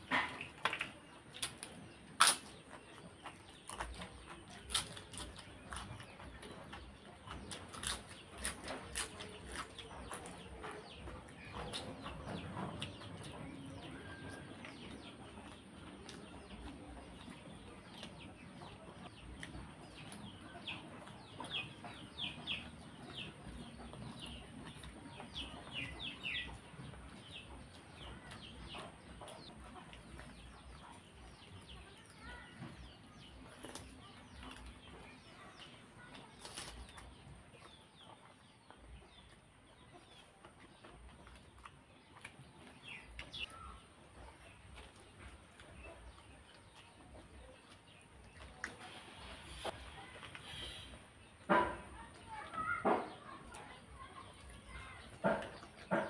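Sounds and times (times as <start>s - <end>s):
wet chewing and lip-smacking: 0.2s - 24.1s, 39.1s - 50.5s
faint bird chirps: 48.8s - 51.1s.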